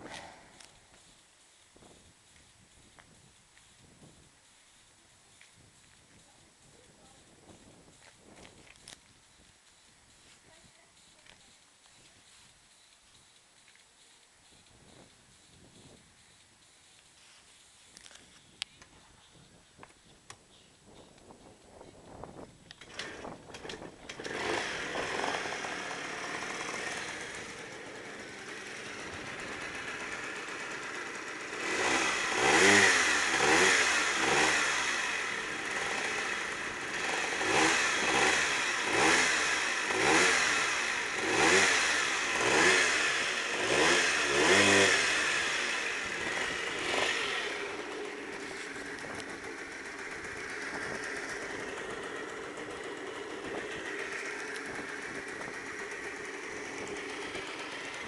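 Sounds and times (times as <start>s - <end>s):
scooter engine idling and revving: 20.9s - 58.0s.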